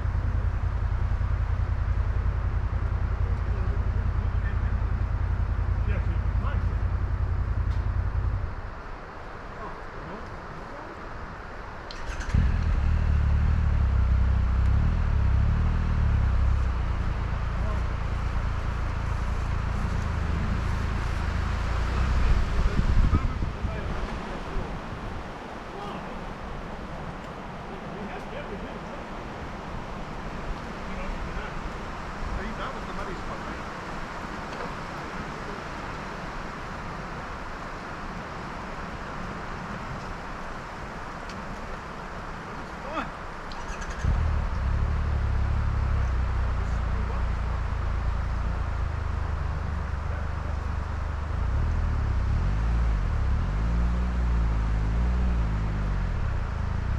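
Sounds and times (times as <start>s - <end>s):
motorcycle engine starting and idling: 11.9s - 24.7s, 43.6s - 52.1s
motorcycle engine and wind noise: 16.0s - 56.9s.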